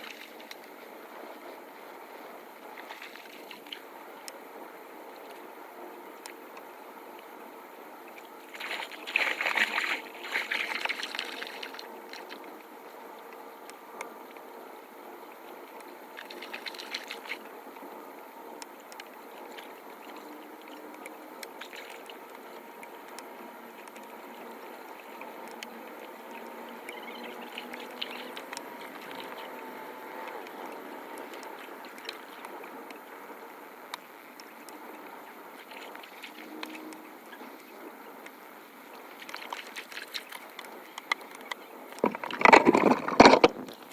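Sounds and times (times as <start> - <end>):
splashing and clatter: 39.2 - 43.9.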